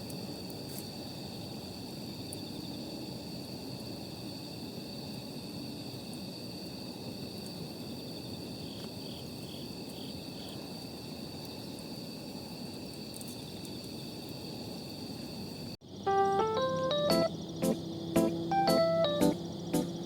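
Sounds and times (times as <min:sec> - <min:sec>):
crickets trilling: 0:00.0 - 0:20.0
pulsed insect chirps: 0:13.1 - 0:20.0.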